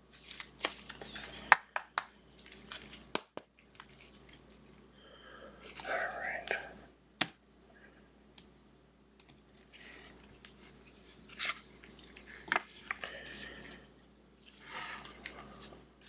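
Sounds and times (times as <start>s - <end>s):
cards rustling and crinkling: 0.0s - 4.9s, 5.6s - 6.5s, 9.2s - 16.0s.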